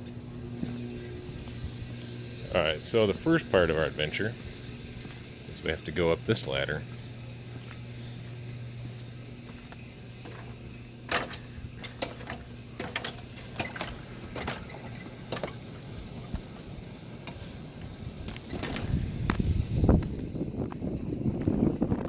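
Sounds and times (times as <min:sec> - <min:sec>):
low hum: 0:00.0 - 0:22.0
clanks on ladder rungs: 0:11.1 - 0:15.7.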